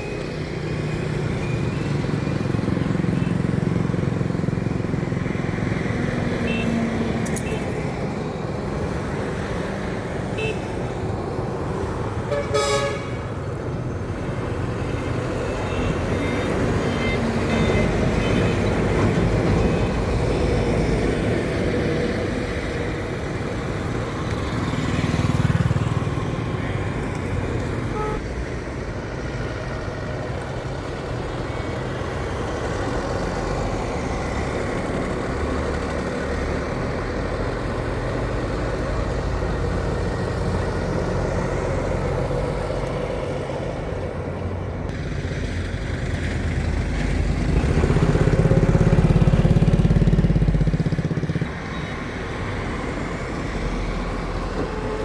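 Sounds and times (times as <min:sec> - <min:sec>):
heavy vehicles passing: 0:00.0 - 0:55.0
vehicle horn blast: 0:12.3 - 0:13.3, 0:27.9 - 0:28.2.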